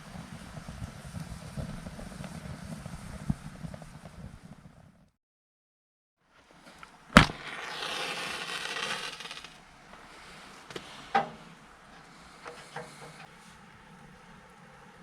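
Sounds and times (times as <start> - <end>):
hissing: 6.7 - 10.7.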